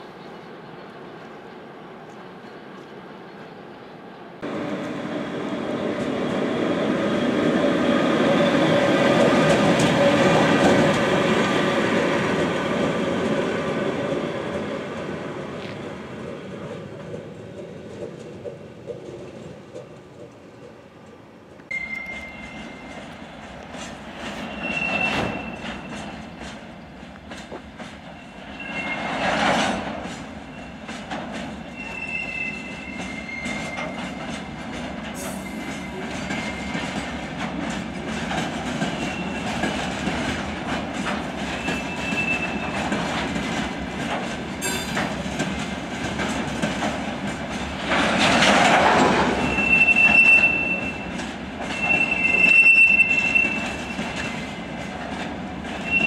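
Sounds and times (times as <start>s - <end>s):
rumble and clatter of wheels on rail: 0.0s - 56.0s
wheels squealing: 21.7s - 26.6s, 28.0s - 29.7s, 30.4s - 34.3s, 35.2s - 37.1s, 38.8s - 40.0s, 41.4s - 43.0s, 48.3s - 54.8s, 55.7s - 56.0s.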